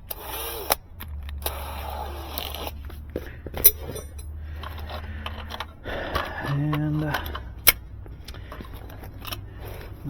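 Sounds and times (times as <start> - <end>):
steady low hum: 3.4 - 4.7
tools rustling and metal clinks: 3.6 - 7.6.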